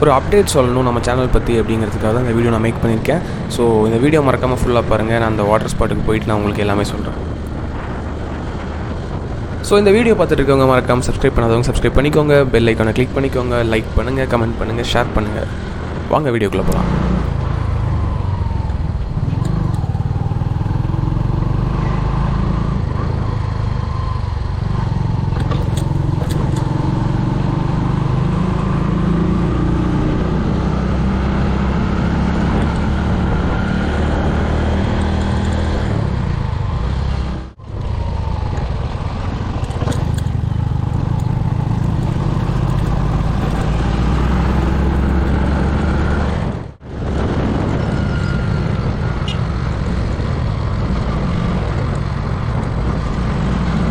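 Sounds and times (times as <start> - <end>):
wind rushing over microphone: 0.0 - 53.9
motorcycle engine running: 35.2 - 45.5.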